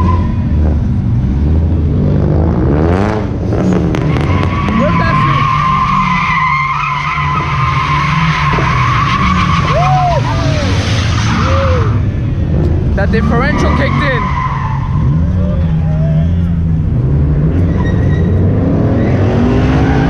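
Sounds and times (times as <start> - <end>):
truck engine revving: 0.0 - 20.0
tyres squealing: 4.1 - 12.0, 13.1 - 16.8.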